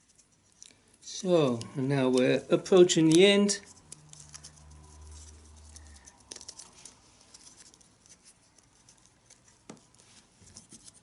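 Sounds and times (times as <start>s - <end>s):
leather strap scratching and rubbing: 0.0s - 0.6s, 3.0s - 11.0s.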